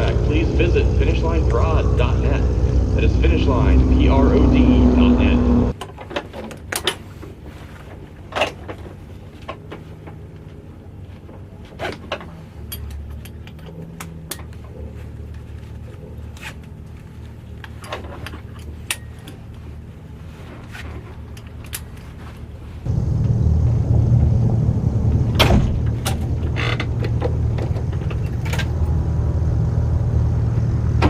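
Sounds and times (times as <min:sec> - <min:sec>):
engine idling: 0:00.0 - 0:05.7, 0:22.9 - 0:31.0
sharp clicks and knocks: 0:25.3 - 0:28.8.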